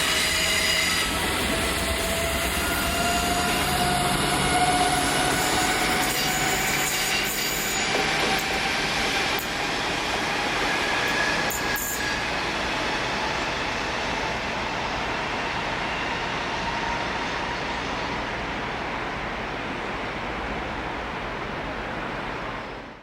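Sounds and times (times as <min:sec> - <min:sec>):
high wheel squeal: 0:00.0 - 0:18.3
railbus running noise: 0:00.0 - 0:23.0.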